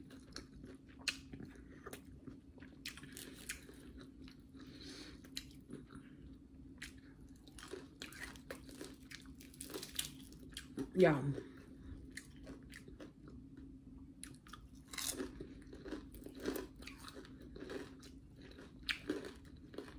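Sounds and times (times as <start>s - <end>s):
chewing and biting: 0.0s - 13.4s, 14.2s - 19.9s
crisp breading crunches: 6.8s - 10.9s, 14.3s - 19.9s.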